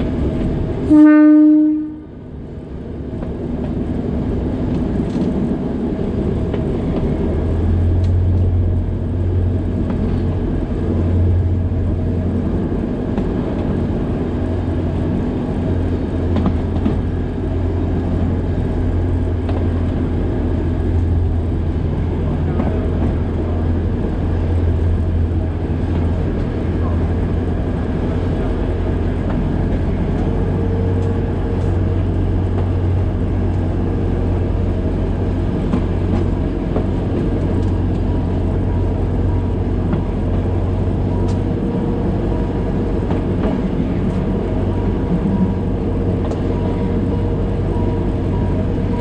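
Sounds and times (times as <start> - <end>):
train running on track: 0.0 - 49.0
train horn blast: 0.8 - 2.2.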